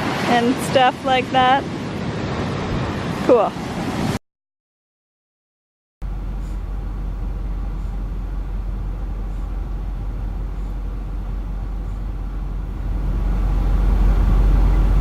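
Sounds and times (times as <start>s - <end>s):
steady low rumbling: 6.0s - 15.0s.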